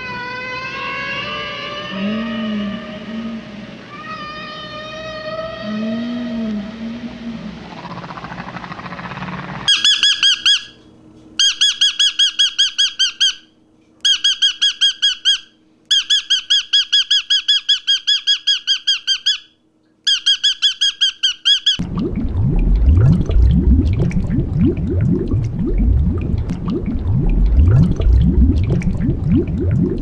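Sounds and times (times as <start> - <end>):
animal squeaky chirps: 9.7 - 10.8, 11.4 - 13.4, 14.0 - 19.5, 20.1 - 21.8.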